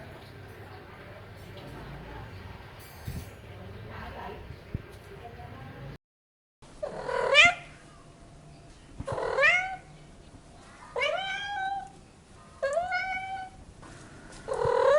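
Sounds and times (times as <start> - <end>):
cat meowing: 11.0 - 12.0, 12.6 - 13.6.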